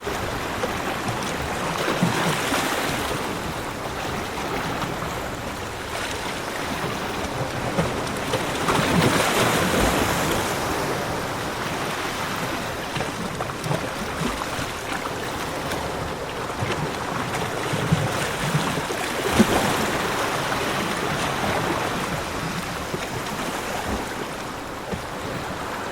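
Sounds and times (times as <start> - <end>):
ocean waves breaking on beach: 0.0 - 25.9.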